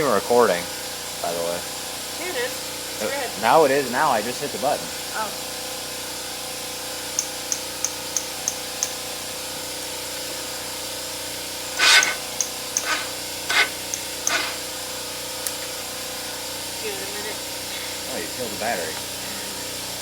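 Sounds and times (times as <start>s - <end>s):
starter motor cranking: 11.8s - 14.7s.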